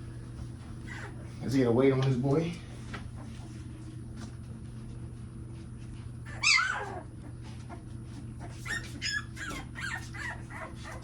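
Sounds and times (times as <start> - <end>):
puppy crying: 0.8 - 1.3, 6.2 - 11.0.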